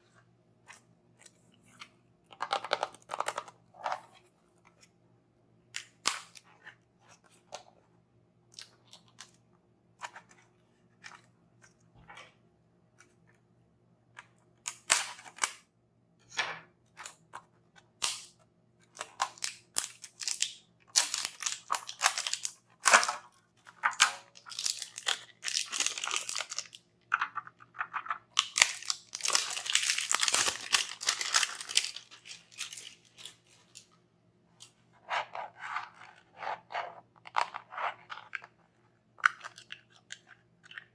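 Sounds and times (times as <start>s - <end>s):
packaging crinkling and tearing: 21.0s - 23.1s, 23.8s - 33.8s.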